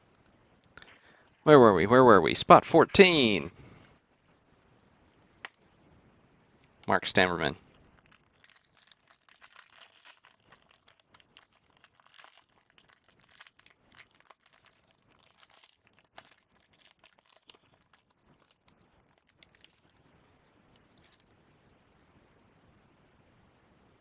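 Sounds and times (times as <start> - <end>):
wrapper tearing and crinkling: 7.9 - 20.0, 20.9 - 21.3.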